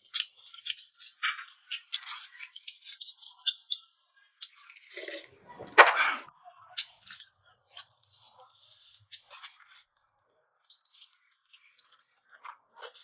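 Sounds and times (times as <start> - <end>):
man chewing crunchy food: 10.6 - 13.0.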